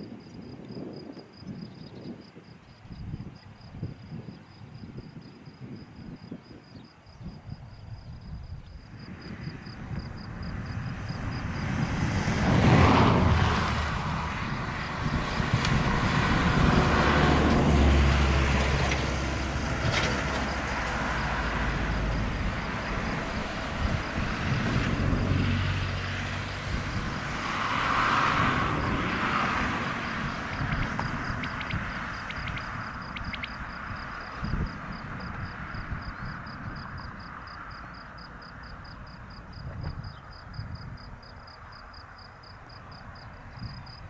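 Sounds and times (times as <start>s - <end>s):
turboprop aircraft passing: 8.8s - 39.4s.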